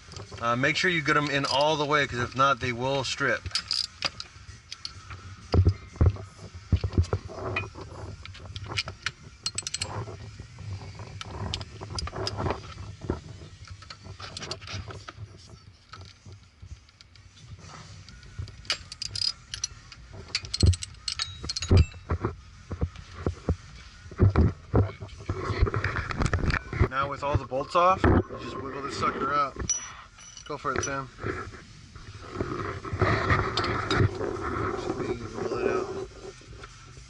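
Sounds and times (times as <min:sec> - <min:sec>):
ratchets and sockets clicking: 0:01.1 - 0:02.7, 0:03.3 - 0:17.4, 0:18.0 - 0:23.8.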